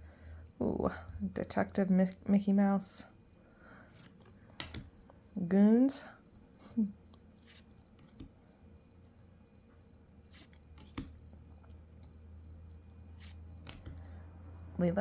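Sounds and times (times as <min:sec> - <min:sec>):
low steady hum: 0:00.0 - 0:15.0
trading cards clicking: 0:04.0 - 0:04.9, 0:07.5 - 0:08.3, 0:10.4 - 0:11.2, 0:13.2 - 0:14.0.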